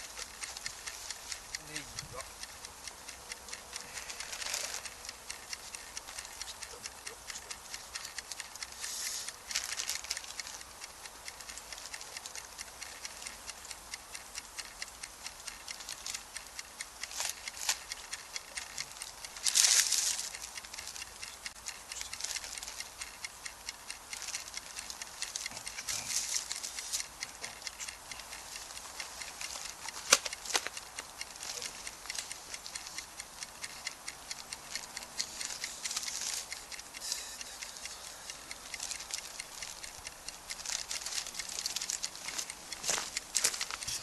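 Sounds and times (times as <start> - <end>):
campfire crackling: 0.0 - 44.0.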